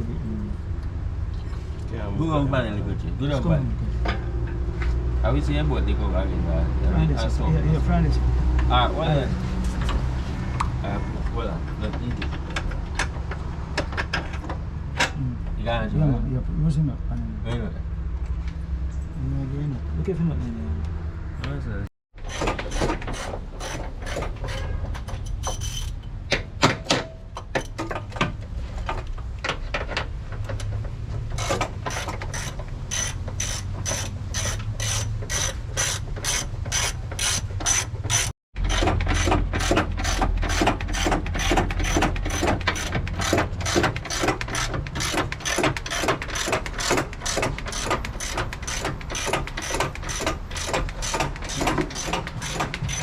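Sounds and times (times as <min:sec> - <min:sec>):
metal clicks and knocks: 0:11.8 - 0:15.2, 0:22.2 - 0:53.0
hand ratchet clicking: 0:31.4 - 0:53.0.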